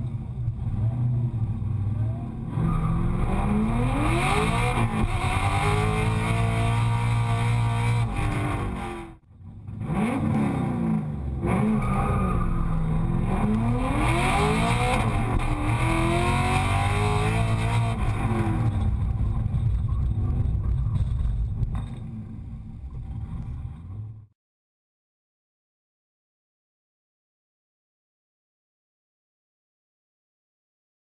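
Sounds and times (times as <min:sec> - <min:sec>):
car engine revving: 0:00.0 - 0:24.3.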